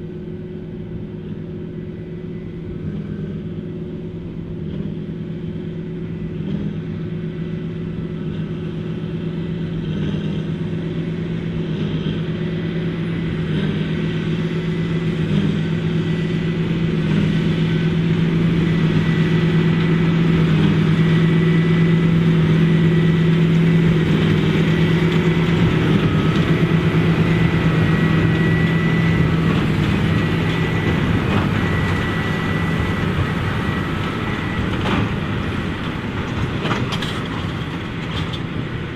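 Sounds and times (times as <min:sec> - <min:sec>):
high whine: 0:00.0 - 0:38.9
tractor diesel engine: 0:00.0 - 0:38.9.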